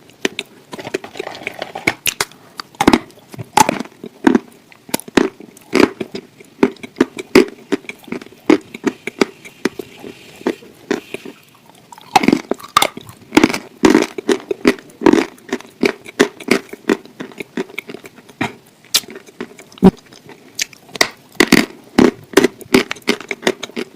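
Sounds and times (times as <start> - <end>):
chewing and biting food: 0.2 - 23.9.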